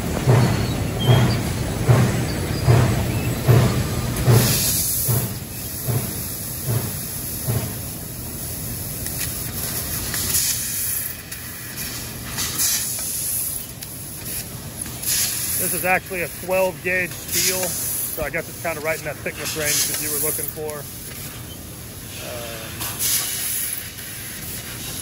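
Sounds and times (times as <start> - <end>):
laser cutter low thumps: 0.2 - 4.5
laser cutter steady hiss: 3.8 - 25.0.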